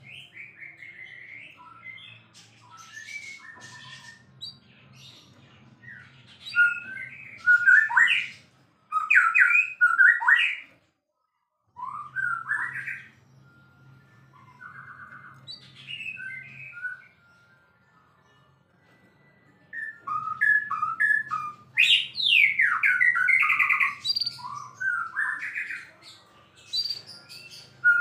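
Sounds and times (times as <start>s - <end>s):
bird singing whistled phrases: 0.0s - 4.6s, 5.9s - 10.7s, 11.8s - 13.7s, 14.3s - 17.3s, 19.7s - 26.0s, 26.7s - 28.0s.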